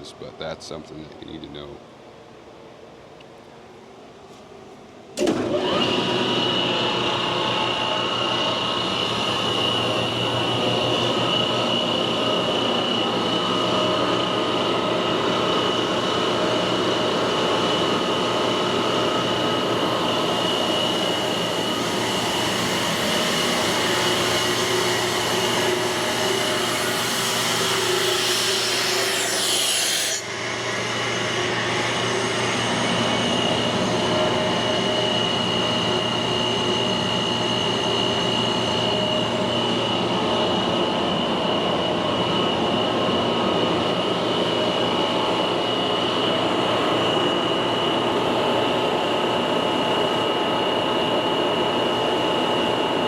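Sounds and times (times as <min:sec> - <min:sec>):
air compressor running: 0:05.2 - 0:28.5.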